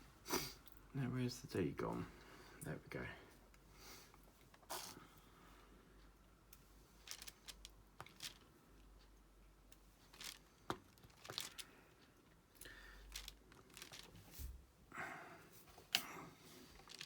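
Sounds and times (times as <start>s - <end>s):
plastic rustling: 7.0s - 8.4s, 10.0s - 11.8s, 13.0s - 14.7s, 16.6s - 17.0s.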